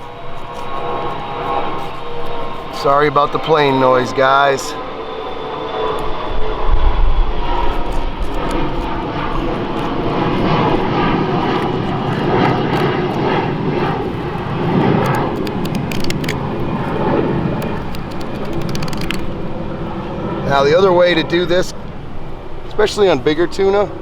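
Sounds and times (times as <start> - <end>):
airplane engine drone: 0.0 - 24.0.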